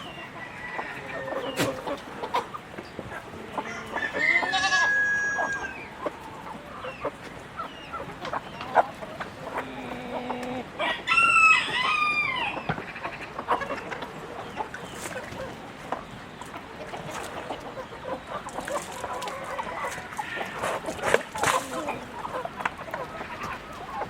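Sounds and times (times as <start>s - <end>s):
chickens clucking: 0.0s - 24.0s
rooster crowing: 0.2s - 1.5s, 3.6s - 5.8s, 10.8s - 12.6s.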